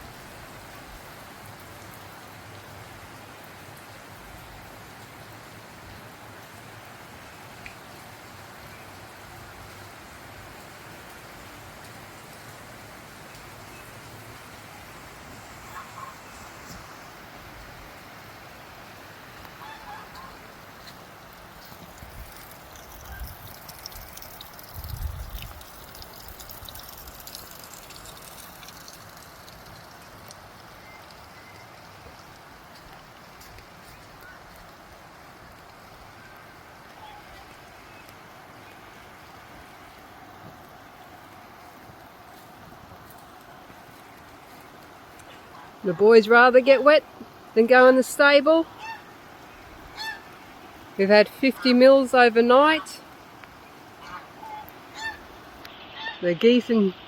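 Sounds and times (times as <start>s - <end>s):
heavy rain falling: 0.0s - 57.0s
wind buffeting microphone: 23.0s - 25.8s.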